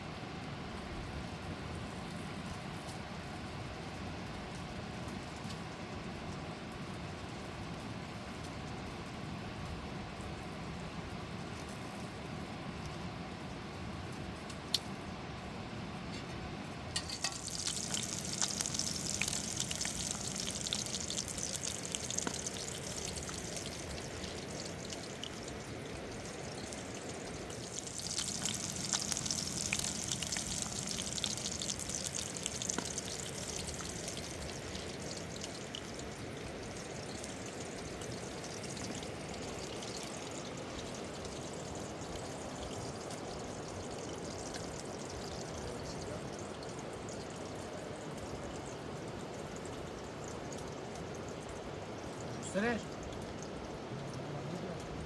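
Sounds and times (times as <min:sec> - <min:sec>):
high hiss with fine crackling: 0:16.0 - 0:55.0.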